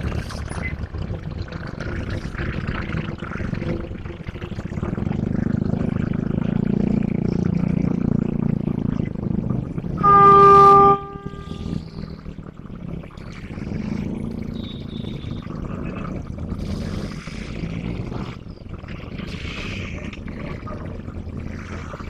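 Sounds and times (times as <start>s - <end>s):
diesel engine rumble: 0.0s - 22.0s
locomotive horn toot: 10.0s - 11.8s.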